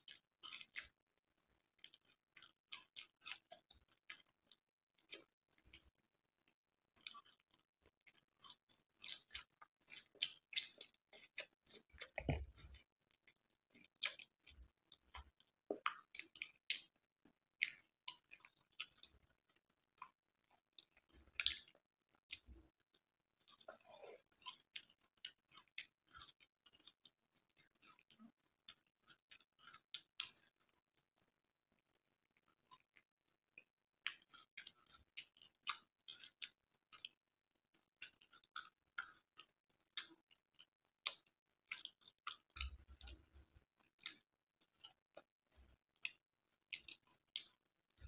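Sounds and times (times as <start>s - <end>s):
wet chewing: 0.1s - 1.0s, 1.8s - 6.0s, 7.0s - 16.9s, 17.6s - 20.1s, 20.8s - 22.5s, 23.4s - 27.0s, 38.0s - 43.2s, 43.8s - 47.7s.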